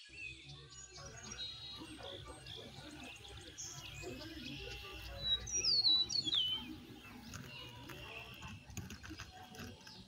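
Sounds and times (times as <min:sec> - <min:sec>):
faint outdoor background noise: 0:00.0 - 0:10.0
bird whistling: 0:03.6 - 0:06.8.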